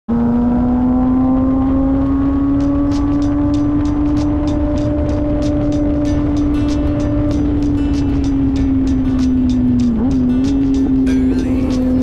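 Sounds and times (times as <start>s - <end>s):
motorcycle engine at high revs: 0.1s - 12.0s
wind rush: 1.4s - 12.0s.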